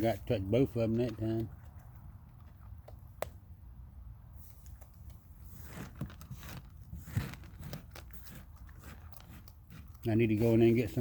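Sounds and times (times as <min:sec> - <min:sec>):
raccoons crunching hard food: 0:00.0 - 0:11.0.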